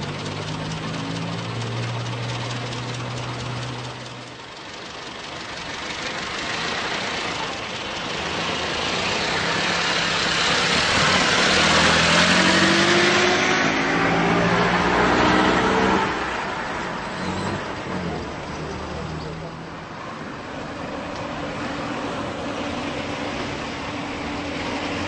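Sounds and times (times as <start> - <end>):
car engine driving past: 8.8 - 19.7.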